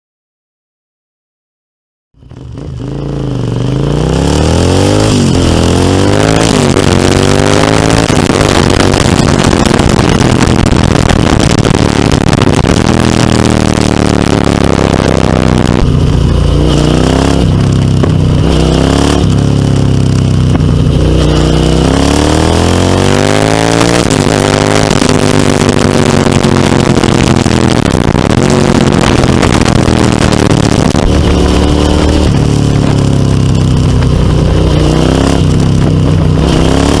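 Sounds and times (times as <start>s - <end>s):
motorcycle engine accelerating: 2.2s - 37.0s
loud rushing noise: 2.8s - 37.0s.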